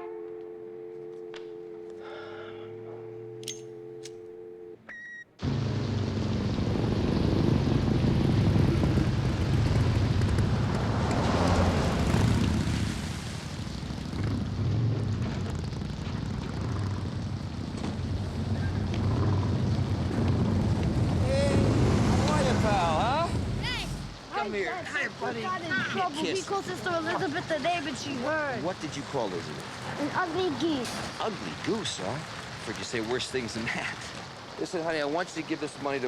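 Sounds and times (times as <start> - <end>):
telephone dial tone: 0.0 - 5.2
telephone click: 3.4 - 4.5
loud rumbling roar: 5.4 - 24.2.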